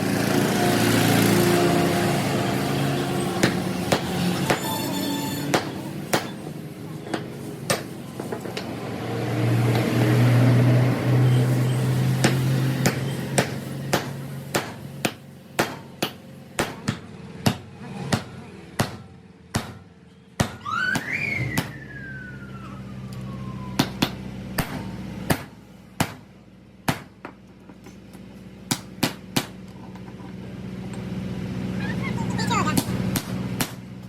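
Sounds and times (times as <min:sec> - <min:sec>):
whine rising and falling: 0:20.7 - 0:24.0.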